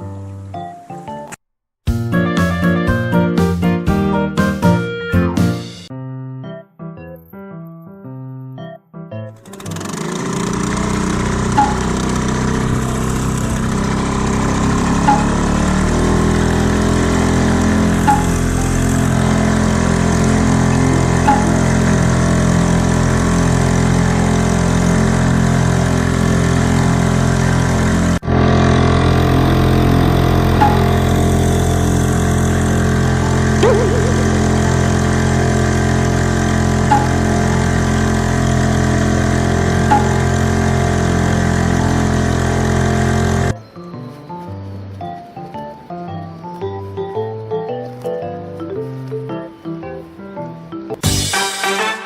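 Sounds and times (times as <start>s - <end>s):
outboard motor running: 9.4s - 43.6s.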